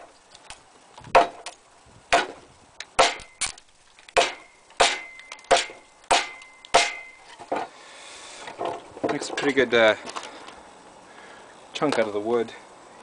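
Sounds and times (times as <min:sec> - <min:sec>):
machete chopping into wood: 0:01.1 - 0:01.5, 0:02.1 - 0:02.4, 0:03.0 - 0:07.7.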